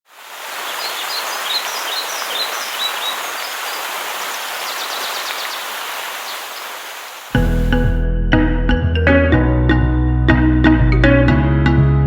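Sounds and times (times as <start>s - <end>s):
waterfall rushing: 0.0s - 8.0s
birds chirping: 0.1s - 8.0s
ticking bird calls: 0.6s - 7.7s.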